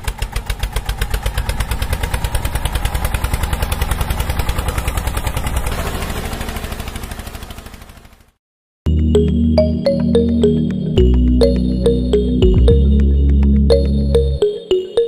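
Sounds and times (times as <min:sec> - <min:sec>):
small engine chugging: 0:00.0 - 0:08.4.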